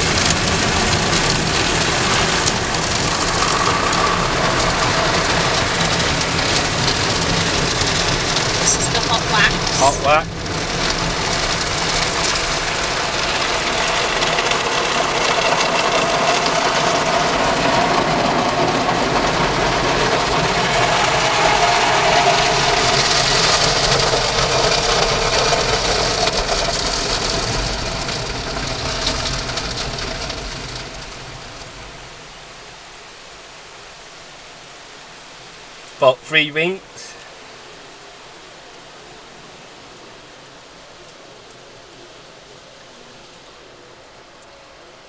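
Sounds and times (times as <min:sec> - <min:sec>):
low rumble: 0:00.0 - 0:33.1
car wash spraying and machinery: 0:00.0 - 0:42.8.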